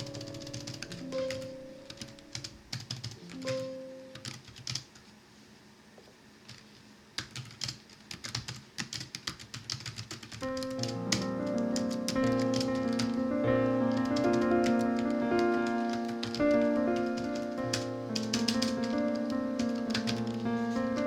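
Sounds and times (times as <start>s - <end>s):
soft background music: 0.0s - 4.2s
computer keyboard typing: 0.0s - 5.0s, 7.2s - 21.0s.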